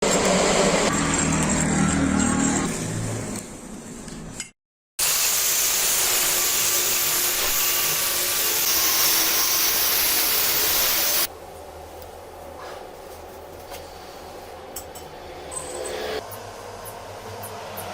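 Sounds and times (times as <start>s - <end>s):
arc welding hiss: 5.0s - 11.3s.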